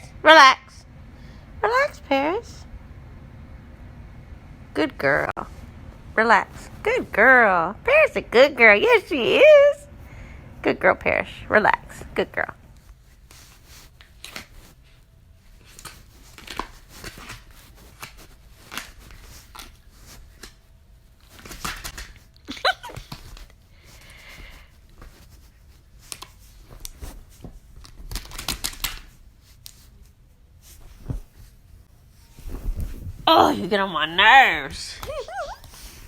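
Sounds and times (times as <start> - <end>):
rustling and crinkling: 12.0 - 36.0.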